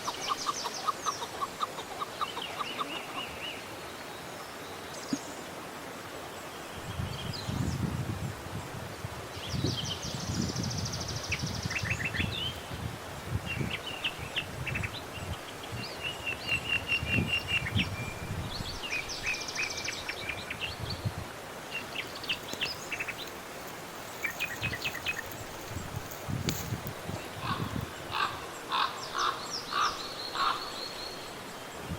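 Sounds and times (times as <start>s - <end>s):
small birds chirping: 21.7s - 31.8s.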